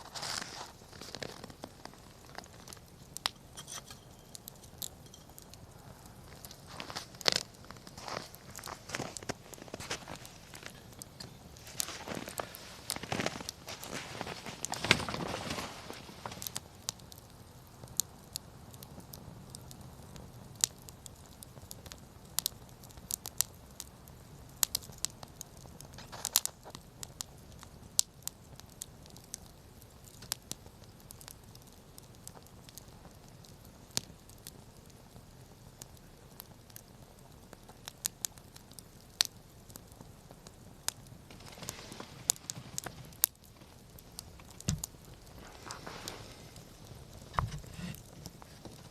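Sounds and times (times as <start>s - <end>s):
rustling crunching noise: 0.0s - 5.6s, 6.2s - 16.6s, 41.3s - 48.9s
campfire crackling: 0.0s - 48.9s.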